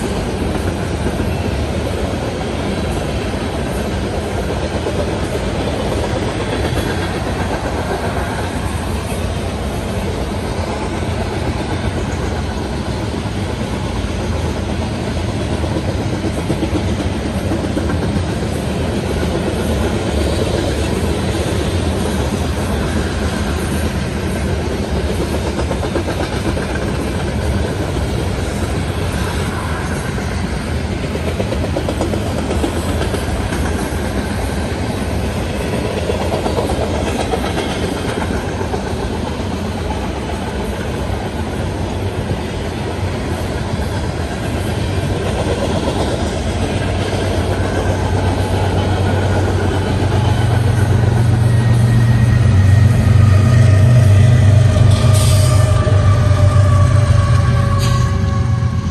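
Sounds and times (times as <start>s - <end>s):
diesel locomotive engine drone: 0.0s - 58.9s
train wheels rumbling on rail: 0.0s - 58.9s.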